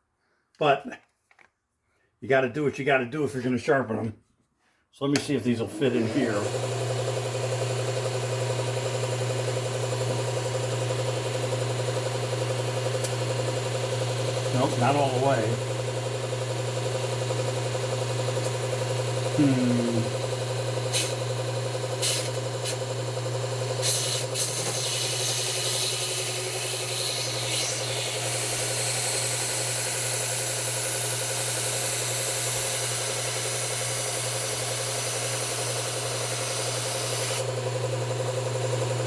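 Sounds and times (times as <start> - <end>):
belt sharpener motor hum: 5.2 - 39.0
blade grinding on belt: 14.1 - 16.3, 19.0 - 21.3, 23.8 - 37.5.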